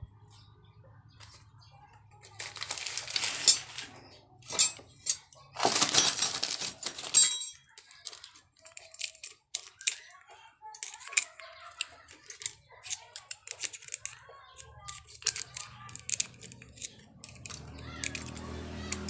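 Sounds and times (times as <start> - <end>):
rattling and scraping on engine: 1.0 - 7.2, 10.8 - 19.0.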